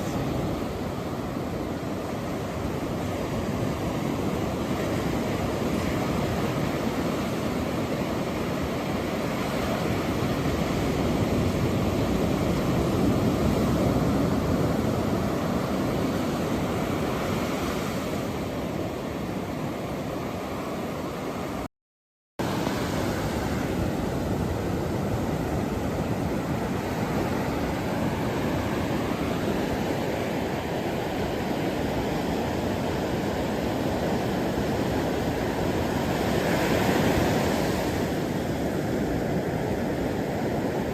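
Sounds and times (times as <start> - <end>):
ocean surf waves: 0.0 - 21.7, 22.4 - 40.9.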